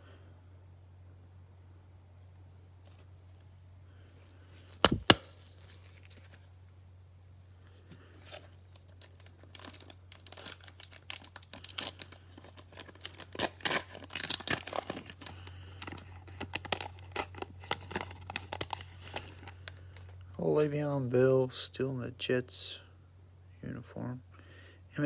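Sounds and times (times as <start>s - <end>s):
steady low hum: 0.0s - 25.0s
cellophane wrapper crinkling: 4.4s - 6.6s, 7.7s - 20.4s.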